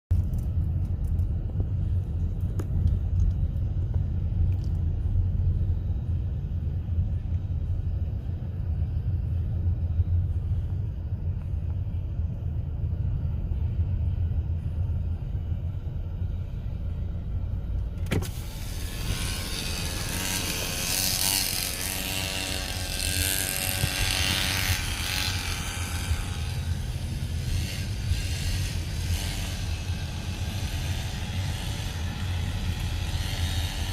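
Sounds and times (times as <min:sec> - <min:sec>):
minibike engine droning: 0:18.1 - 0:33.9
loud wind rush: 0:18.2 - 0:33.9.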